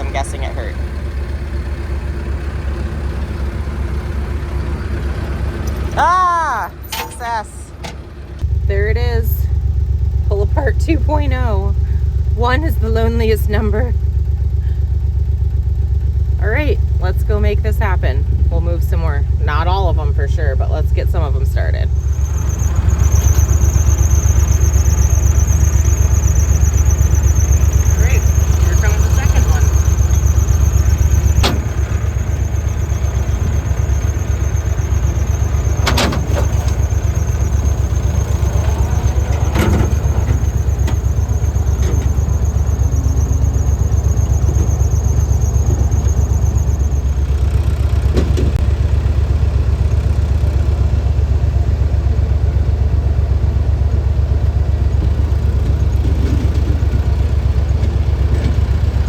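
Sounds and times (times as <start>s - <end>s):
tractor diesel engine running: 0.0s - 59.0s
sharp clanks and knocks: 6.7s - 8.4s, 22.0s - 32.4s, 33.1s - 42.7s
high-pitched squeal: 21.9s - 47.4s.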